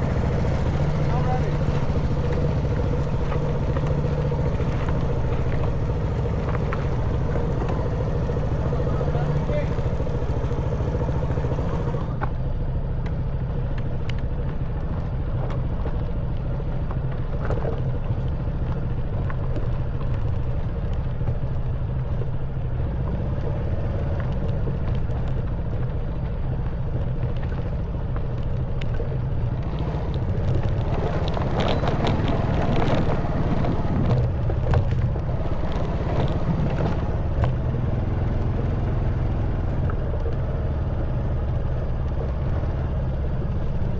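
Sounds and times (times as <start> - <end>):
motorbike engine running: 0.0 - 43.9
tyres rattling over stones: 29.6 - 37.4.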